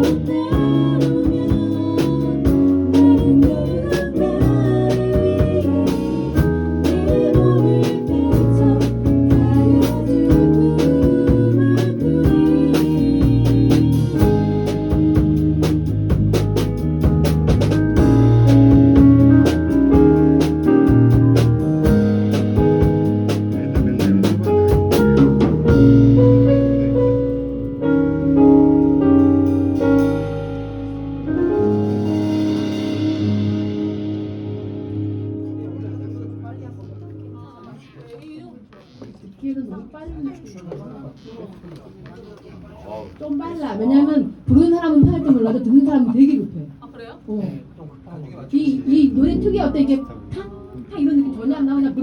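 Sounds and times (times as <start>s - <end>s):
drums: 0.0s - 35.5s
sustained piano chords: 0.0s - 37.9s
jazzy band instrumental: 0.0s - 38.8s
guitar: 0.0s - 39.0s.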